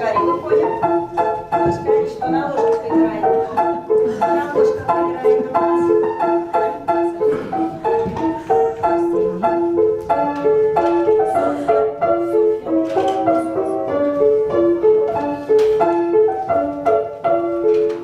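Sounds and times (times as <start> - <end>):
piano playing a tune: 0.0 - 18.0.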